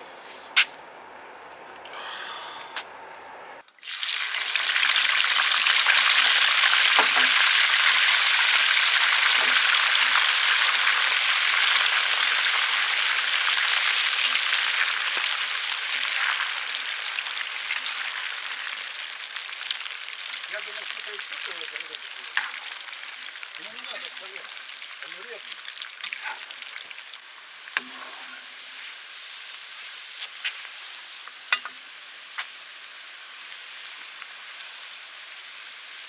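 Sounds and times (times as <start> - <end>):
fish sizzling in hot oil: 3.8 - 36.0.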